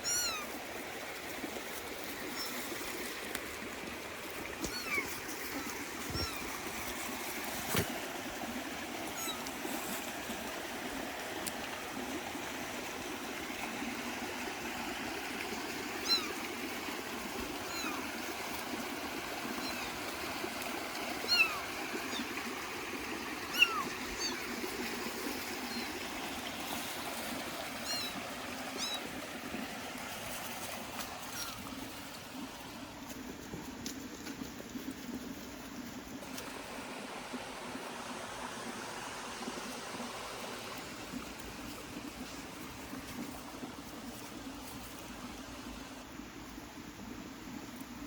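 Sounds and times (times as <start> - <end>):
running stream: 0.0 - 48.0
kitten mewing: 4.7 - 6.5.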